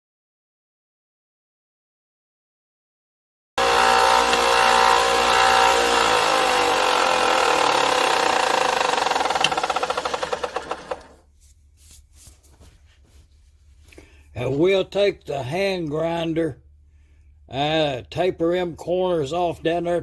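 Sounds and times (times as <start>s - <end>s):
power tool motor running: 3.6s - 11.2s.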